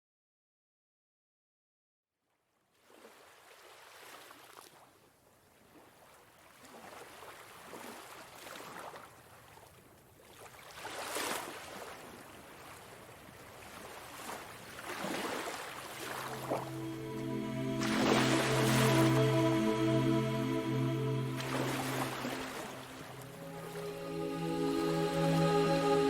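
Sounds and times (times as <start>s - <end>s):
waves washing onto beach: 13.4s - 26.0s.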